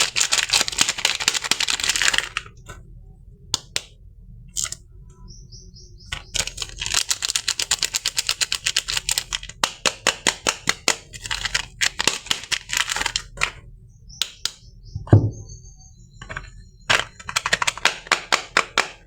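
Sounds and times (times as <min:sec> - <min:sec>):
soap packaging crackling: 0:00.0 - 0:02.8, 0:06.1 - 0:13.6.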